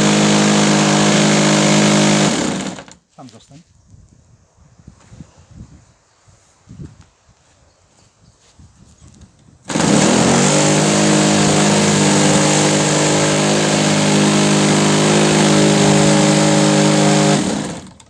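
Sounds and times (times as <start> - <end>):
small gasoline engine running: 0.0 - 3.0, 9.7 - 18.0.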